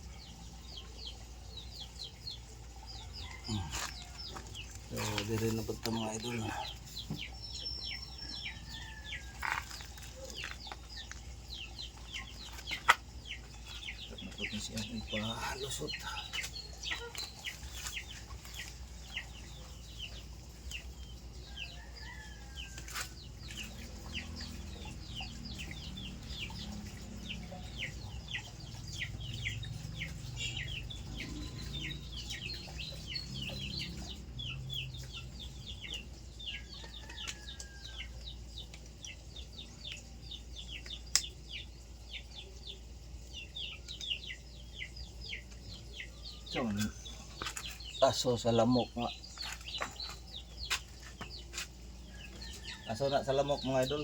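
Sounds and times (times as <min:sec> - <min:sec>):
chickens clucking: 0:00.0 - 0:54.0
chicks chirping: 0:00.0 - 0:54.0.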